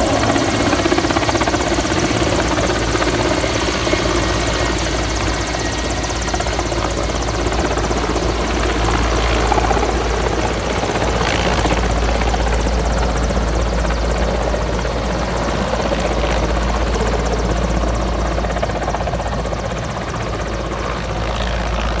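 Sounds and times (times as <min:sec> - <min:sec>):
helicopter rotor and engine: 0:00.0 - 0:22.0.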